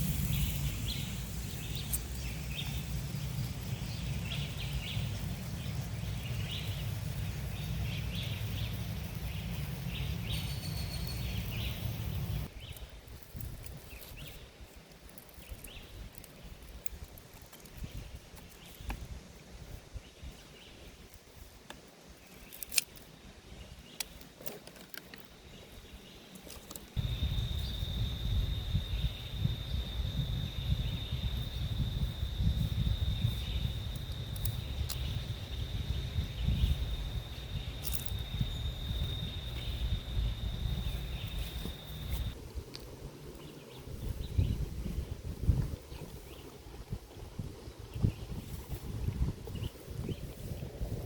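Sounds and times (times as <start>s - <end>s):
wind rumbling on microphone: 0.0s - 21.6s, 27.0s - 51.0s
high-pitched drone: 27.0s - 42.3s.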